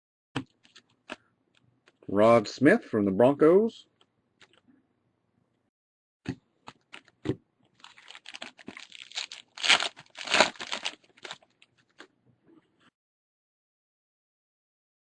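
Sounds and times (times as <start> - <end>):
foil wrapper tearing and crinkling: 7.8 - 12.0.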